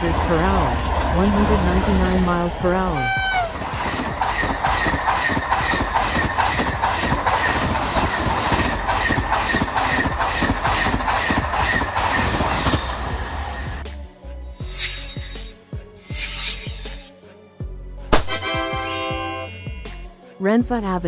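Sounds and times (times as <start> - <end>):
train wheels clacking on rails: 0.0 - 13.8
train running noise: 0.0 - 13.9, 14.5 - 17.1.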